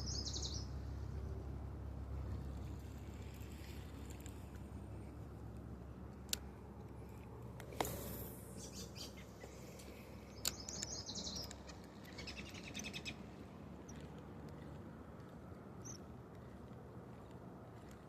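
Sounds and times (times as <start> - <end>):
bird chirping: 0.0 - 0.8, 8.5 - 14.1, 15.8 - 16.1
steady low hum: 0.0 - 18.0
sharp clicks: 9.8 - 12.8.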